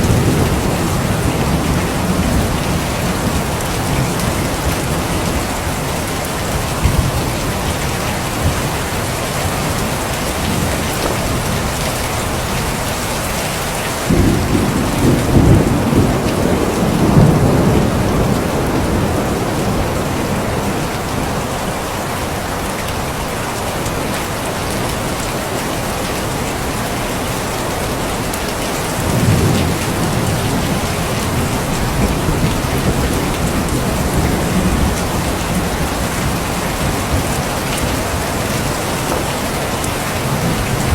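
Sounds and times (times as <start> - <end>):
low rumbles of thunder: 0.0 - 12.6, 14.1 - 21.4, 28.9 - 40.9
heavy rain falling: 0.0 - 40.9.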